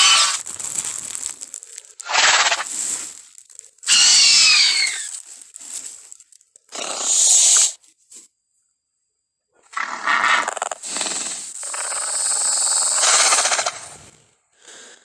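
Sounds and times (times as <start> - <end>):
creature calls: 0.0 - 0.4, 2.0 - 2.7, 3.8 - 5.2, 9.7 - 14.0.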